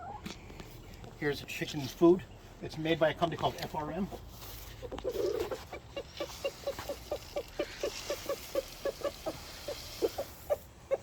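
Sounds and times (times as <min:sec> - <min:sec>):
chickens clucking: 0:00.0 - 0:01.0, 0:03.6 - 0:11.0.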